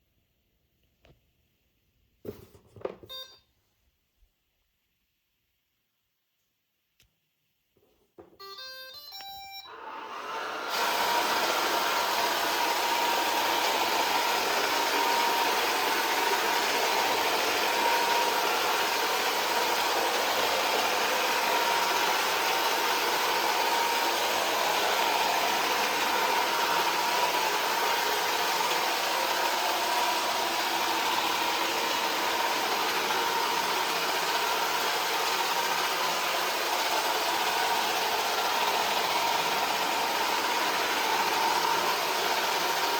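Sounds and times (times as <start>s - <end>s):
robot vacuum humming: 9.7s - 42.9s.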